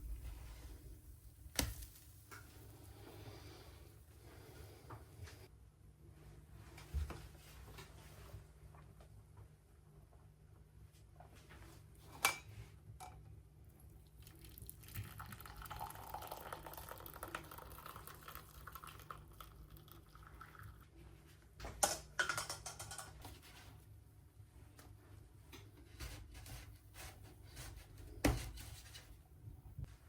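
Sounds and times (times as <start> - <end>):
liquid pouring into cup: 14.1 - 20.8.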